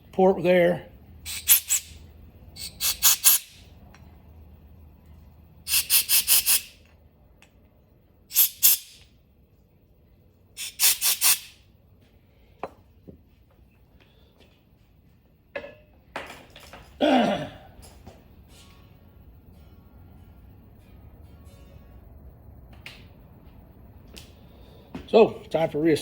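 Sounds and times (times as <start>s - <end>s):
air blow gun hissing puffs: 1.3s - 2.0s, 2.6s - 3.6s, 5.7s - 6.8s, 8.3s - 9.0s, 10.6s - 11.6s.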